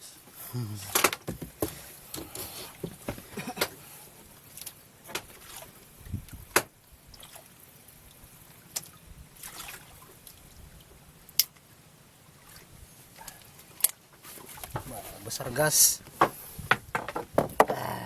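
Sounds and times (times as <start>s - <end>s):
water splashing and dripping: 4.3s - 11.7s, 12.3s - 15.0s
sharp knocks: 16.2s - 17.8s.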